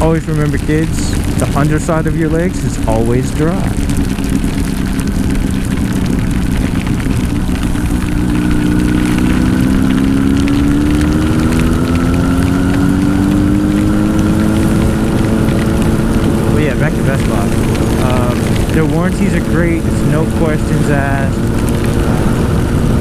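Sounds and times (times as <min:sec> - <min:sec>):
motorcycle engine riding: 0:00.0 - 0:23.0
rain on helmet: 0:00.0 - 0:23.0
wind noise on microphone: 0:00.0 - 0:23.0.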